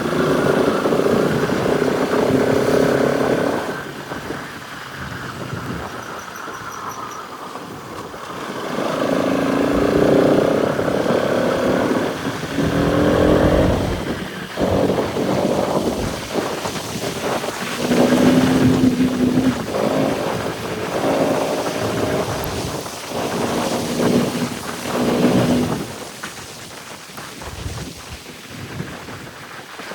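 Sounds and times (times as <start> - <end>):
motorcycle engine revving: 8.8 - 16.5.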